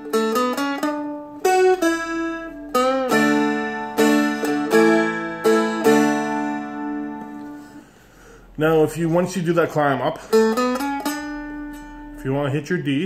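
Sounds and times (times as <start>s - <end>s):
picked dulcimer melody: 0.0s - 7.8s, 10.2s - 12.4s
chord strums: 0.0s - 7.9s.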